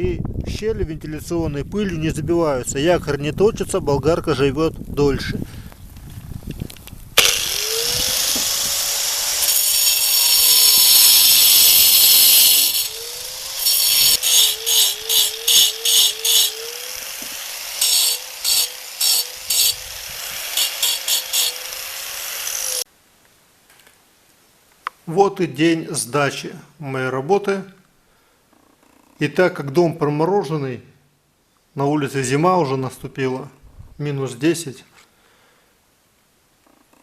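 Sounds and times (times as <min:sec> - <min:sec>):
angle grinder cutting brick: 0:07.2 - 0:22.9.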